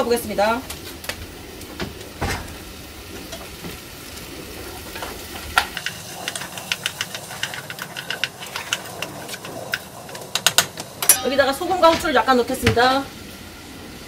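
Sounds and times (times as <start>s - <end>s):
food frying in oil: 0.0s - 14.0s
wooden spoon scraping pot: 5.0s - 10.8s.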